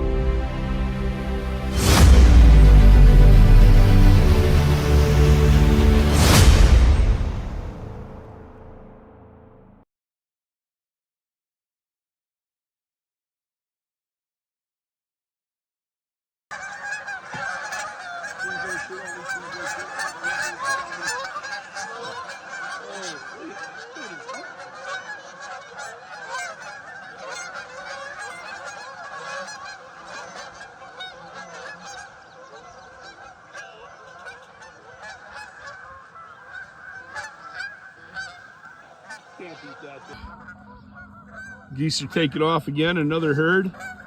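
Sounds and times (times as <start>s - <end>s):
flock of geese honking: 0.0s - 7.8s, 16.5s - 44.0s.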